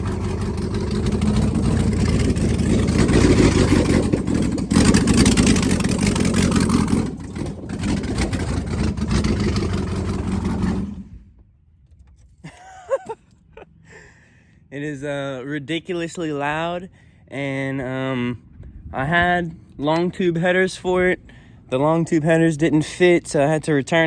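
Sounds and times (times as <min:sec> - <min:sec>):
loud engine revving: 0:00.0 - 0:11.2.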